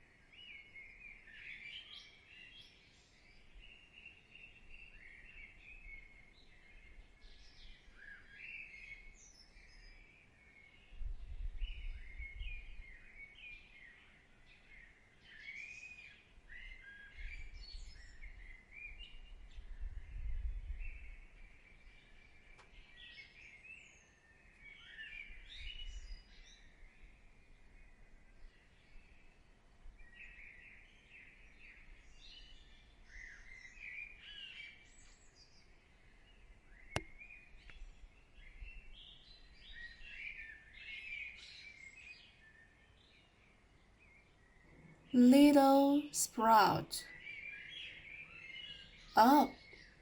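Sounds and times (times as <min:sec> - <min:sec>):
songbirds chirping and warbling: 0:11.6 - 0:19.6, 0:20.8 - 0:27.0, 0:47.2 - 0:50.0.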